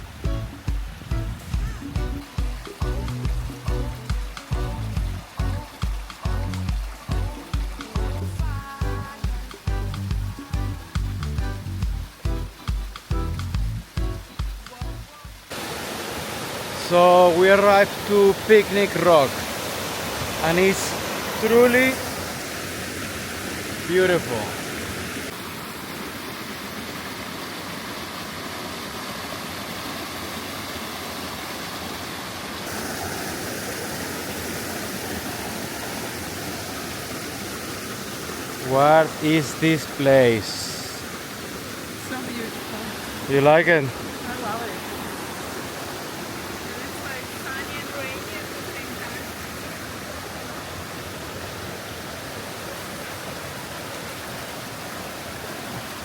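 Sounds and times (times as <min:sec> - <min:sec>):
creek water rushing over rocks: 0:00.0 - 0:56.0.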